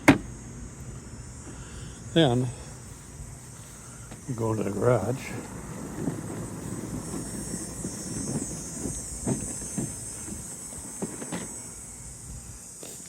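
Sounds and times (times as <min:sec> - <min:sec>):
steady high hiss: 0:00.0 - 0:13.0
footsteps walking: 0:02.8 - 0:11.5.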